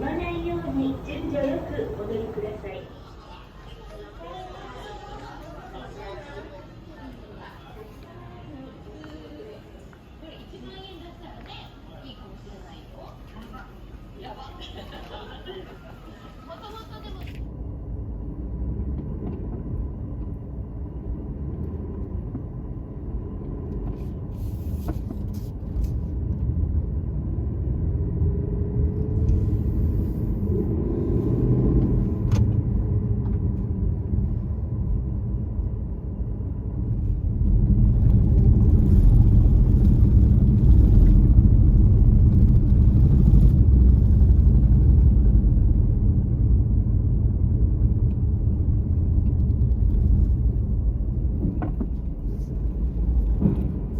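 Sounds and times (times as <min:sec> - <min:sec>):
vehicle engine rumble: 0:00.0 - 0:03.3, 0:14.6 - 0:53.9.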